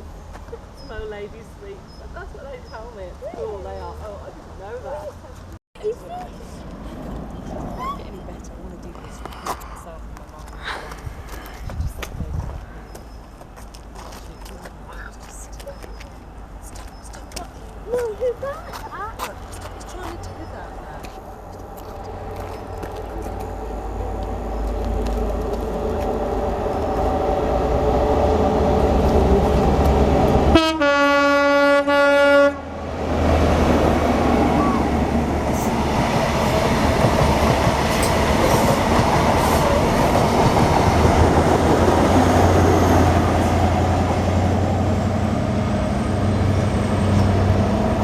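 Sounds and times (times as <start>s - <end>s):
train rumbling past: 5.8s - 13.4s, 14.2s - 48.0s
train horn blast: 30.4s - 32.8s.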